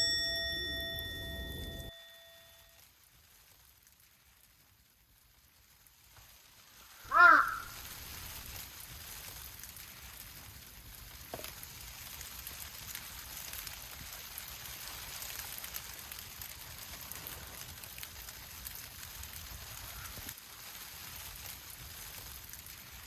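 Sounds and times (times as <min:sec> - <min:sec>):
rain falling: 0:00.0 - 0:23.0
crow cawing: 0:07.1 - 0:08.0.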